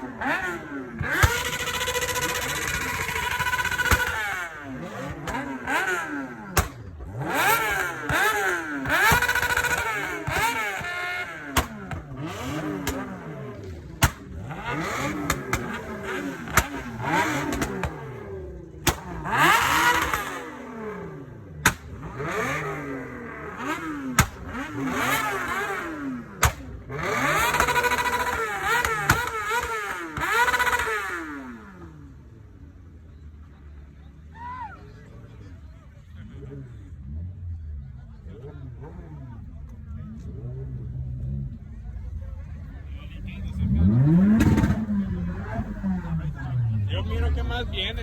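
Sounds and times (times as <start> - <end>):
car engines revving: 0.0 - 48.0
sharp cracks: 6.5 - 6.9, 9.0 - 13.2, 13.8 - 18.1, 18.8 - 20.5, 21.6 - 22.2, 23.6 - 31.0.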